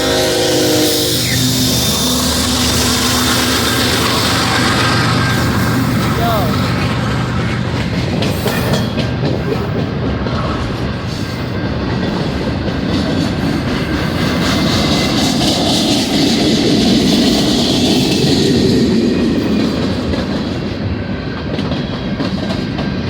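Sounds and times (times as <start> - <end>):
freight train wheels rumbling on rails: 0.0 - 23.0.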